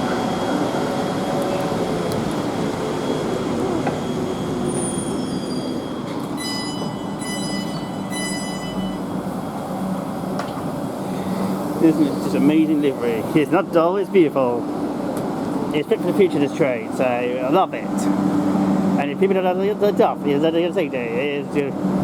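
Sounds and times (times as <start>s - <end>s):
train wheels and motors rumbling: 0.0s - 22.0s
high-pitched pulsing tone: 3.5s - 9.0s.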